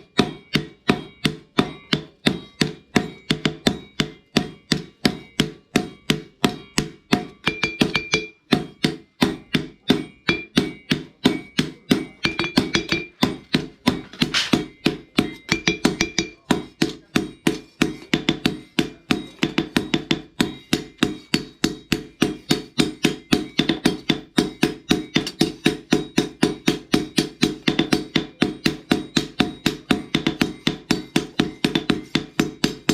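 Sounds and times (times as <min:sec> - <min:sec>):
hammer striking steel on anvil: 0:00.0 - 0:32.9.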